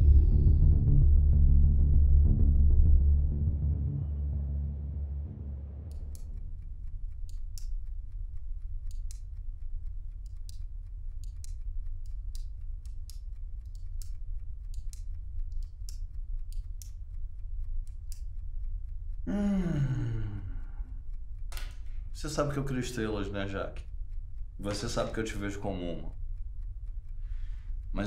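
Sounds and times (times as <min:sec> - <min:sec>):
low hum: 0:00.0 - 0:28.0
ballpoint pen clicking: 0:05.9 - 0:19.0, 0:21.1 - 0:22.0.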